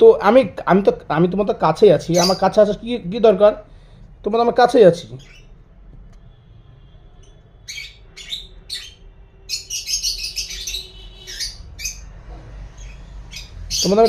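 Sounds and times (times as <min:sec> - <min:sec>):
lovebirds chirping: 0:00.0 - 0:14.0.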